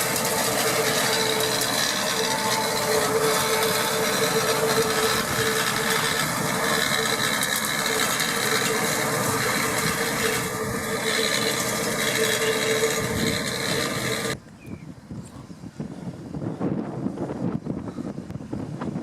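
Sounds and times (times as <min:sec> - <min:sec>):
rotary rake clatter: 0:00.0 - 0:14.4
tractor engine hum: 0:00.0 - 0:14.4.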